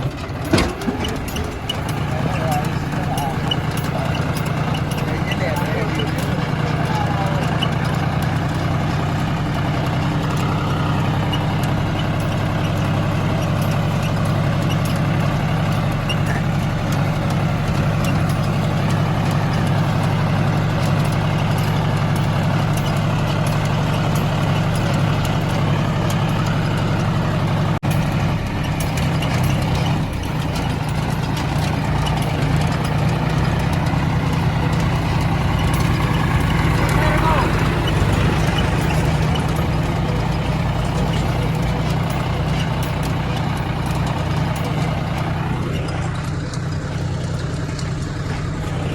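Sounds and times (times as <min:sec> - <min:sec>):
diesel engine droning: 0:00.0 - 0:48.9.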